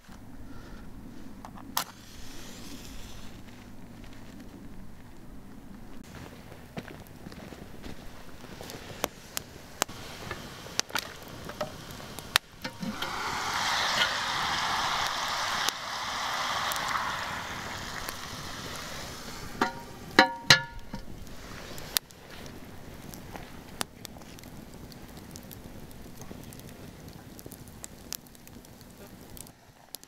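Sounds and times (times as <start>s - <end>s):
wood fire crackling: 0.0s - 30.0s
chicken sizzling in oil: 8.8s - 23.6s
metal clanks on iron pot: 19.6s - 21.1s.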